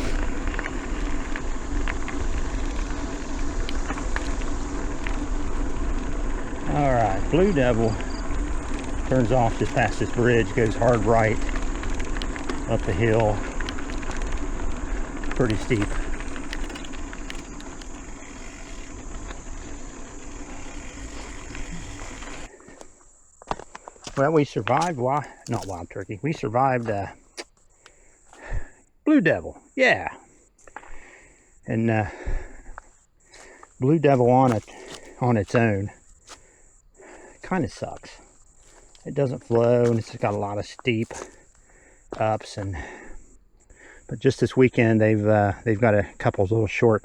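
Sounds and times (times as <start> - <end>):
small clicks and rattles: 0.0 - 22.5
bike tyres rolling: 0.0 - 28.8, 30.1 - 46.3.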